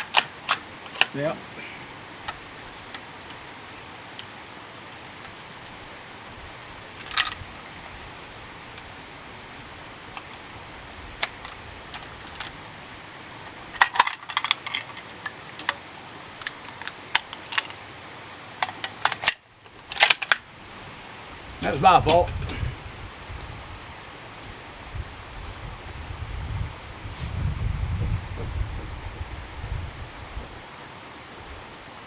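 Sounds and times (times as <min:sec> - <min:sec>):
rifle bolt clicks and rattles: 0:00.0 - 0:01.2, 0:13.8 - 0:15.8, 0:18.6 - 0:20.4
steady hiss: 0:00.0 - 0:32.0.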